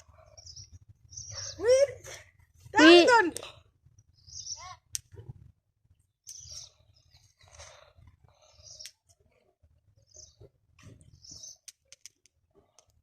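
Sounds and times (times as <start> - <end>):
faint bird chirps: 0.0 - 2.2, 4.0 - 4.9, 6.0 - 12.0
sharp clicks: 11.6 - 13.0.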